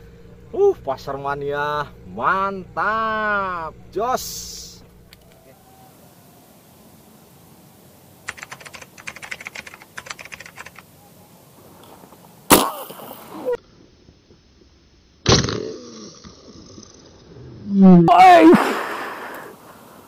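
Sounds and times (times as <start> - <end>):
rapid clicking: 8.2 - 10.9
air rifle shots: 12.5 - 13.3, 18.4 - 19.6.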